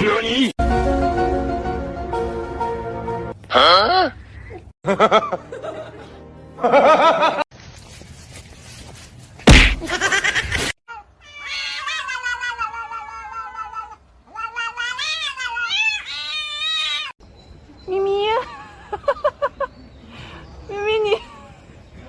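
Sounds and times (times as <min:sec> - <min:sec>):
music: 0:00.6 - 0:03.4, 0:05.5 - 0:07.4.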